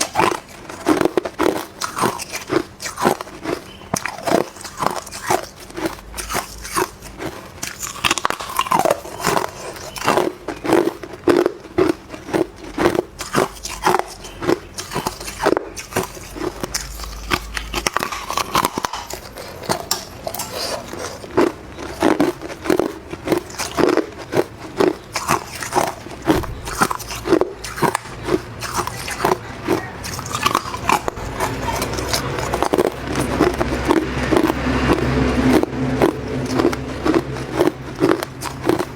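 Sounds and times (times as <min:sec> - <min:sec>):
ice being chewed crunching: 0:00.0 - 0:38.9.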